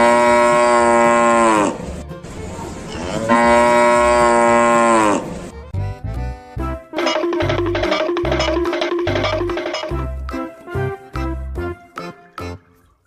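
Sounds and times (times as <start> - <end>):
cow mooing: 0.0 - 1.8, 3.0 - 5.3.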